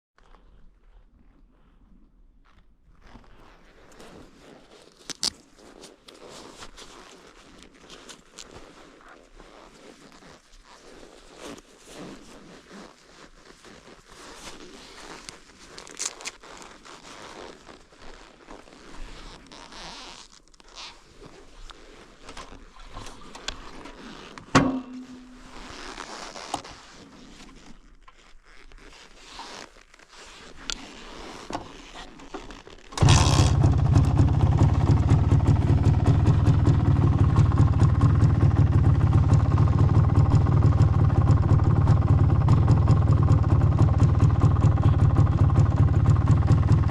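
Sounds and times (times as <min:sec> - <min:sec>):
scrapes and clicks of handling: 0:02.5 - 0:34.1
two-stroke engine starting and idling: 0:24.5 - 0:25.6, 0:32.9 - 0:46.9.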